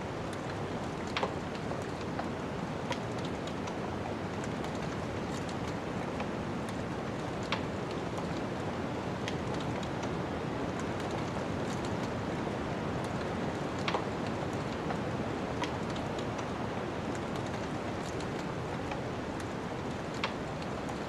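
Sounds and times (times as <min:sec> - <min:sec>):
wood fire crackling and popping: 0:00.2 - 0:21.0.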